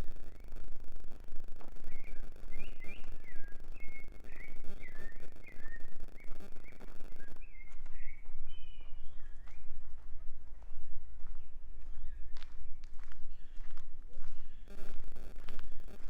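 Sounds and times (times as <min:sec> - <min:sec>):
steady low rumble: 0:00.0 - 0:07.6, 0:14.7 - 0:16.0
footsteps on a path: 0:01.3 - 0:05.0, 0:05.6 - 0:16.0
songbirds chirping: 0:01.4 - 0:10.1.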